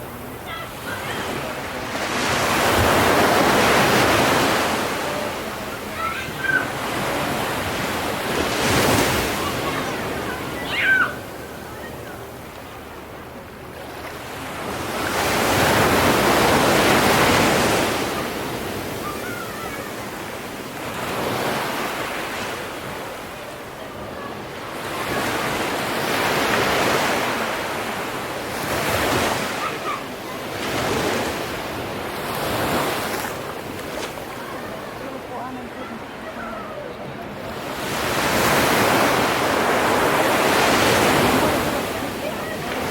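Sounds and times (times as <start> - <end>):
sea waves breaking: 0.0 - 42.9.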